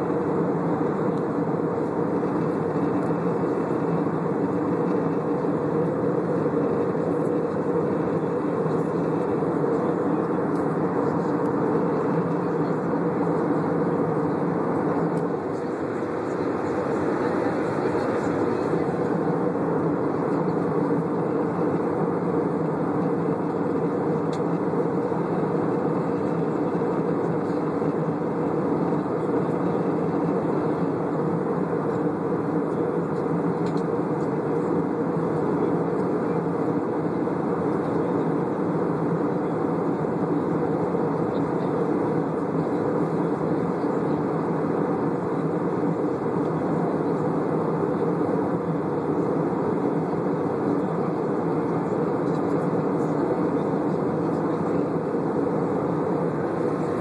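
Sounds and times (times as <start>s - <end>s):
aeroplane cabin engine rush: 0.0s - 57.0s.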